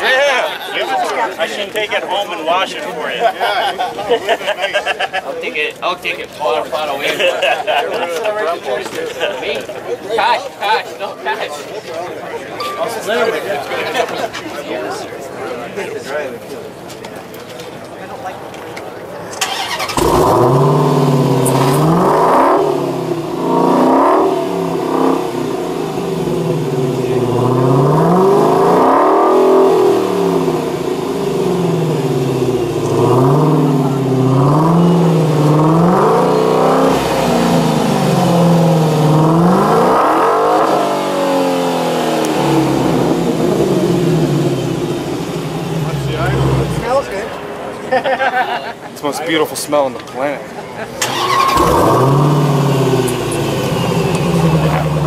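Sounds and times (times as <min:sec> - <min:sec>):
car engine starting and revving: 0:19.4 - 0:47.3, 0:51.0 - 0:55.0.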